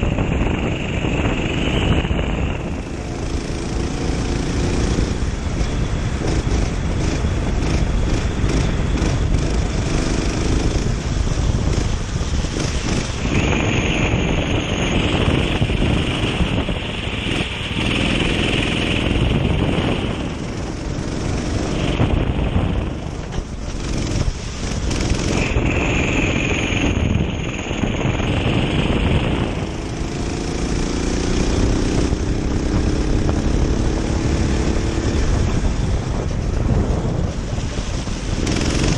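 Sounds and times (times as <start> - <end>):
kart engine running: 0.0 - 38.9
wind buffeting microphone: 0.0 - 38.9.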